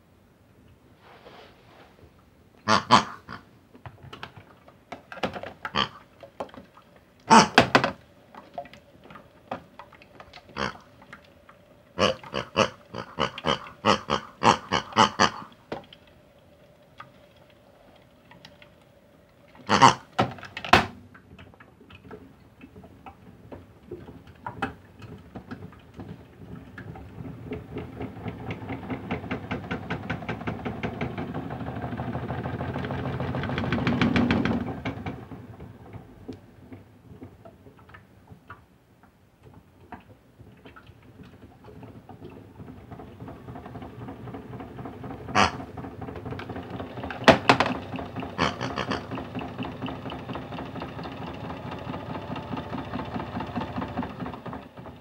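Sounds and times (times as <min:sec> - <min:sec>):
toy washing machine ticking: 0:41.4 - 0:55.0.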